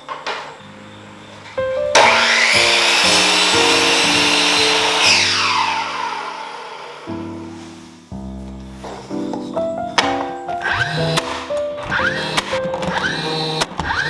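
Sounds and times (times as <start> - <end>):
electric power tool running: 0.1 - 7.2, 10.6 - 14.0
background music: 0.6 - 6.5, 7.1 - 14.0.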